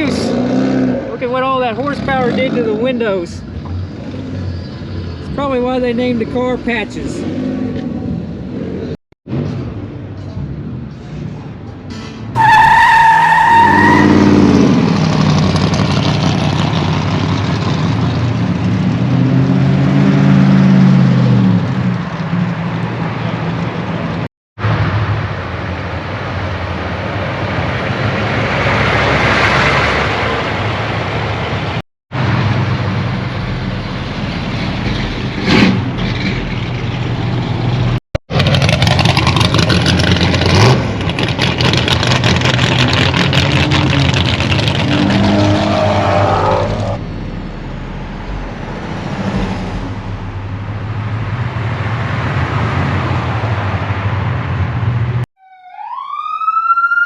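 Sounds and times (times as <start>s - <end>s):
car engine revving: 32.2s - 55.2s.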